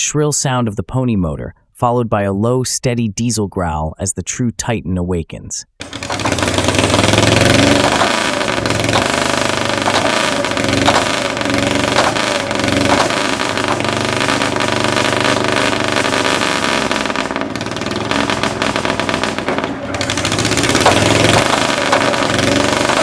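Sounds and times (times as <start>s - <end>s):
sharp engine tick: 5.8s - 23.0s
small starting engine rumbling: 5.8s - 23.0s.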